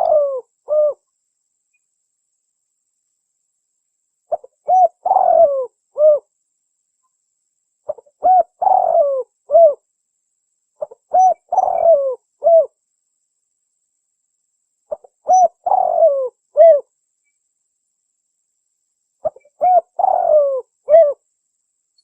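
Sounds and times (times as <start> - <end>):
dove cooing: 0.0 - 1.0, 4.3 - 6.3, 7.9 - 9.8, 10.8 - 12.7, 14.9 - 16.9, 19.2 - 21.2.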